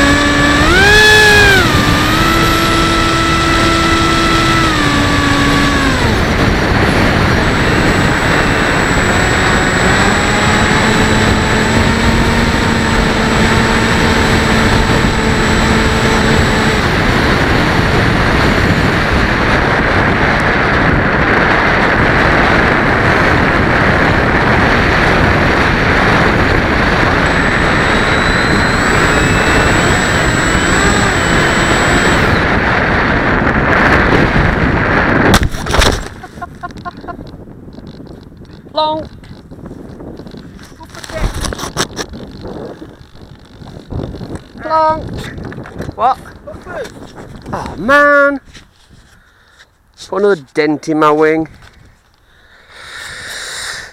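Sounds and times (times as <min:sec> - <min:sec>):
electric motor and propeller whine: 0:00.0 - 0:50.2, 0:51.0 - 0:53.9
wind buffeting microphone: 0:00.0 - 0:53.9.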